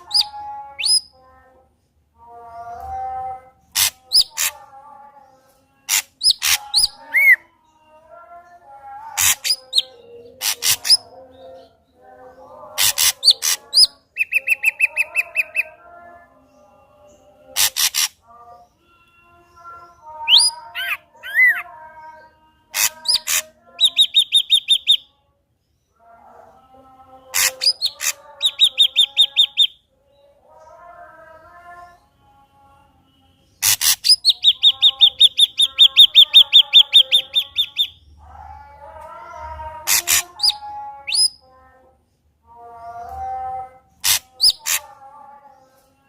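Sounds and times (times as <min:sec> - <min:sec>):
bird singing sharp notes and whistles: 0:00.0 - 0:01.2, 0:13.0 - 0:15.8, 0:18.8 - 0:21.6, 0:22.8 - 0:25.1, 0:27.3 - 0:30.3, 0:33.6 - 0:38.2, 0:39.9 - 0:41.4.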